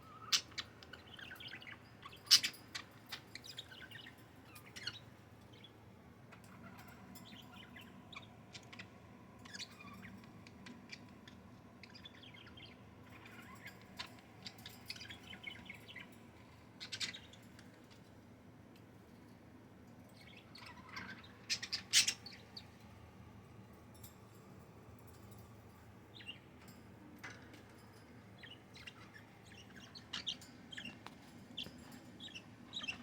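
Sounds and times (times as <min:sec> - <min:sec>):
budgerigars chirping and chattering: 0:00.0 - 0:05.7, 0:06.3 - 0:18.0, 0:20.2 - 0:22.8, 0:28.4 - 0:33.0.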